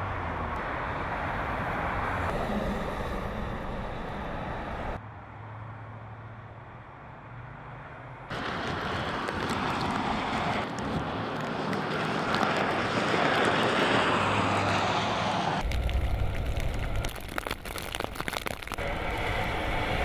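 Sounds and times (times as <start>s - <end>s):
vehicle passing on snowy road: 0.0s - 6.4s, 7.3s - 20.0s
deep low rumble: 2.0s - 5.0s, 15.6s - 20.0s
scattered crackles: 8.3s - 14.2s, 15.6s - 20.0s.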